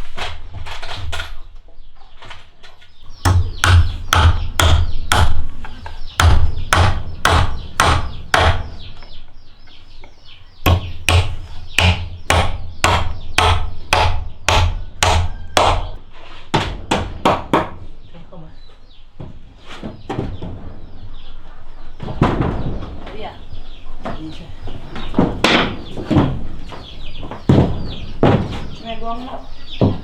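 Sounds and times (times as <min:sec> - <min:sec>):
tool striking wood with thuds: 0:03.1 - 0:09.1, 0:10.6 - 0:17.8, 0:24.9 - 0:28.9, 0:29.8 - 0:30.0.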